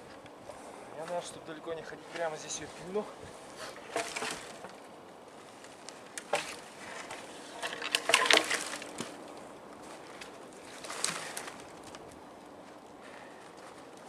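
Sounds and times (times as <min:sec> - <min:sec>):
knocks and scrapes on log: 0:03.6 - 0:04.8, 0:06.2 - 0:09.2
sharp clicks and scrapes: 0:06.1 - 0:09.1.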